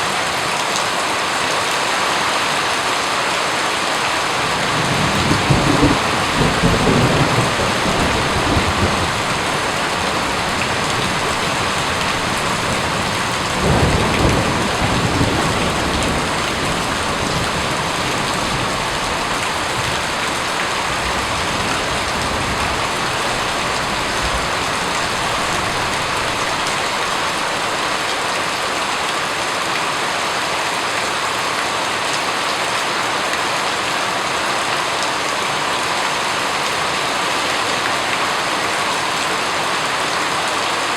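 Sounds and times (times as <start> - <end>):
heavy rain falling: 0.0 - 40.9
thunder rolling: 4.4 - 27.9.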